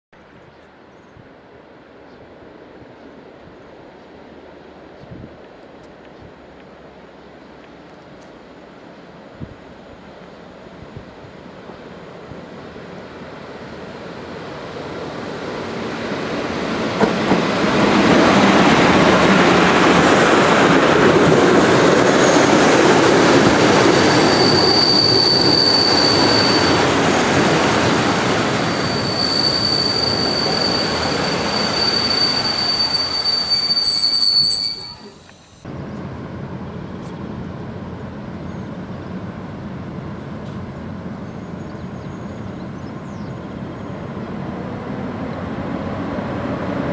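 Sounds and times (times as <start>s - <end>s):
passenger train on rails: 0.2s - 46.9s
high wheel squeal: 23.7s - 35.6s.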